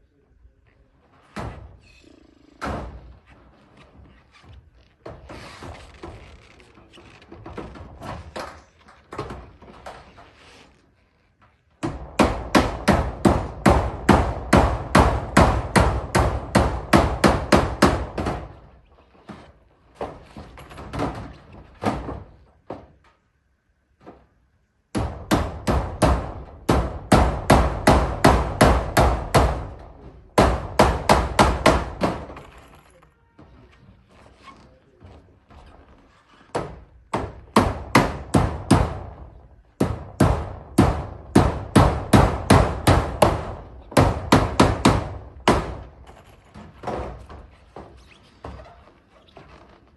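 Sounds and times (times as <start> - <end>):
hammer nailing metal roofing: 2.6 - 3.2, 11.7 - 23.2, 24.9 - 32.8, 35.0 - 49.9.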